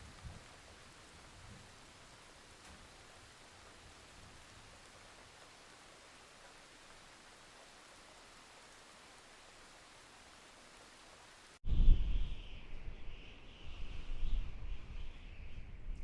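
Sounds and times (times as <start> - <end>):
faint steady rainfall: 0.0 - 11.6.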